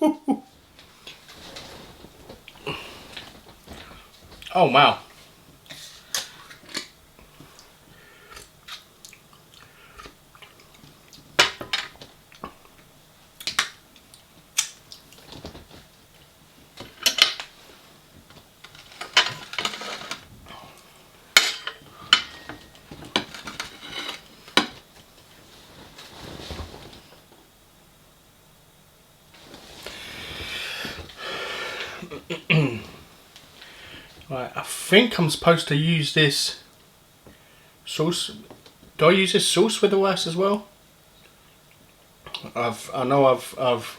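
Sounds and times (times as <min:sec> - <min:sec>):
cutlery clinking on dishes: 0:21.4 - 0:22.7.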